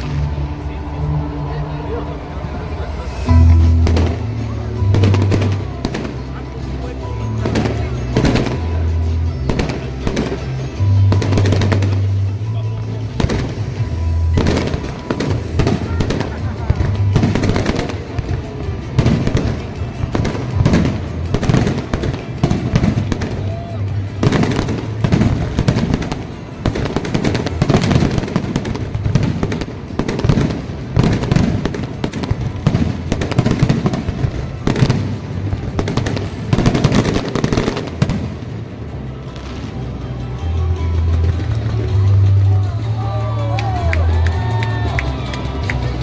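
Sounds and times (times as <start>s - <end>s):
fireworks bangs: 0.0s - 40.0s.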